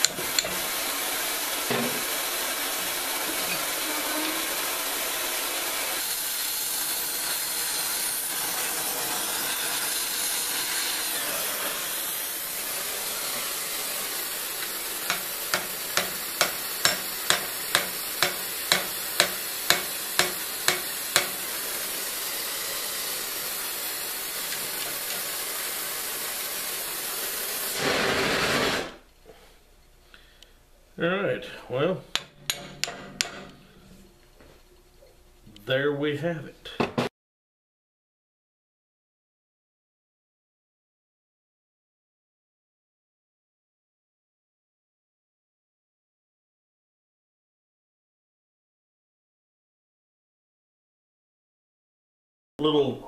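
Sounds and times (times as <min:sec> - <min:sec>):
torch hissing: 0:00.0 - 0:29.1
hammer blows on metal pipe: 0:15.1 - 0:21.5.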